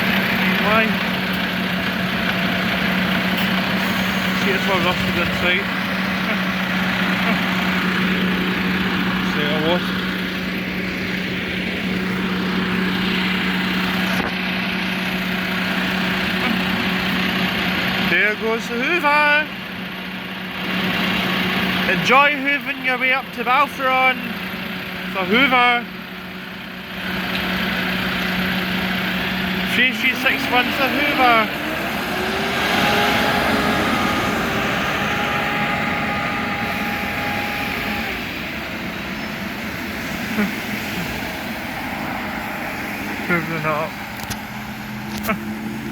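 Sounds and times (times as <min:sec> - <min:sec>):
bus engine whooshing hum: 0:00.0 - 0:18.2, 0:26.0 - 0:45.9
road noise: 0:00.0 - 0:45.9
steady high whine: 0:29.7 - 0:45.3.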